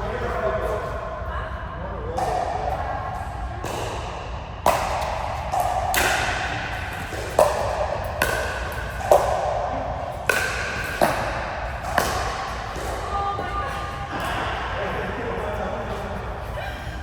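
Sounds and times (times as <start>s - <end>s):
table tennis ball hitting bats: 3.6s - 13.2s.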